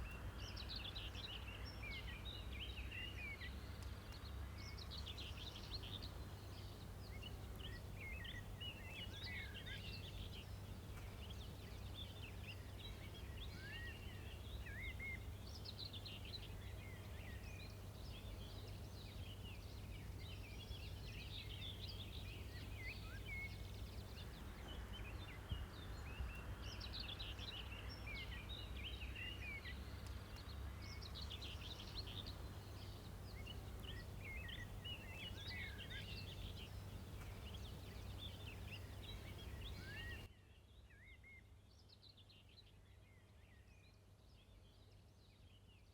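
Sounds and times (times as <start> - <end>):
small birds chirping and twittering: 0.0 - 45.9.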